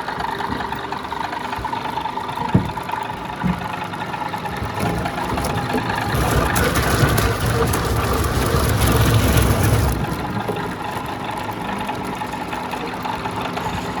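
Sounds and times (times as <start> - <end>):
deep machinery rumble: 0.0 - 14.0
even machine drone: 3.4 - 14.0.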